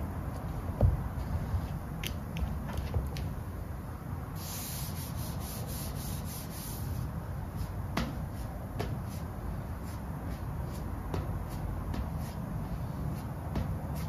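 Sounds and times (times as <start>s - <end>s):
steady low rumble: 0.0s - 4.5s
hand rubbing van bodywork: 4.4s - 14.0s.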